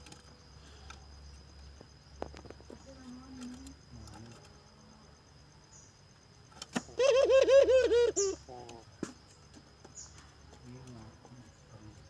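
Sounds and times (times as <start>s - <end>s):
dove calling: 6.4s - 12.0s.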